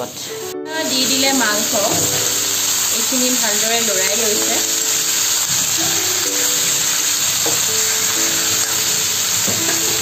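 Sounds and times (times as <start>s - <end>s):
chicken frying in hot oil: 0.0s - 10.0s
music with long held notes: 4.1s - 10.0s.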